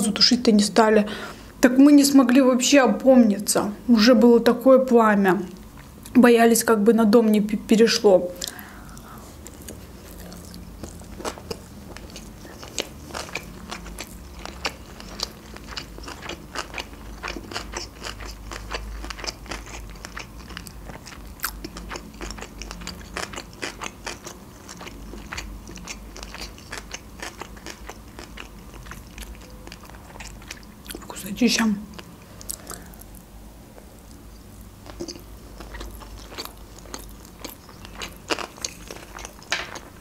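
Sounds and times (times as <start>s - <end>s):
person chewing food: 8.4s - 31.1s, 31.9s - 40.0s.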